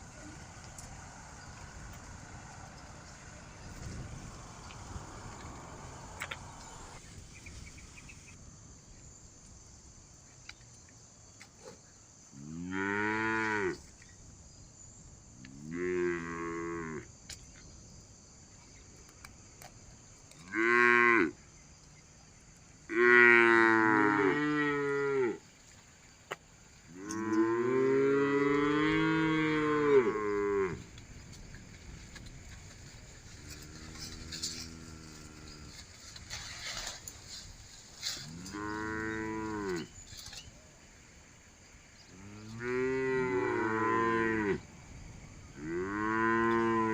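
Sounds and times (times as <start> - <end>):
cows mooing: 22.9 - 25.4, 27.0 - 30.8, 33.4 - 35.8, 38.3 - 39.9, 42.2 - 44.6, 45.6 - 46.9.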